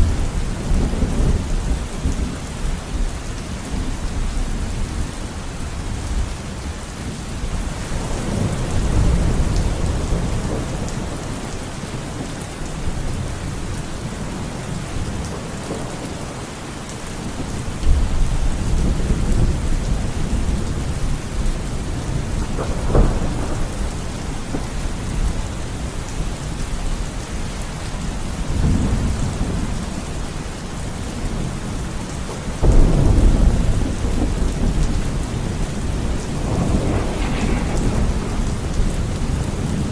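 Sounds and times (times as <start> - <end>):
steady rain: 0.0 - 39.9
thunder rumbling: 7.3 - 16.6, 17.2 - 27.1, 32.6 - 39.9
sharp thunder crack: 32.6 - 39.9.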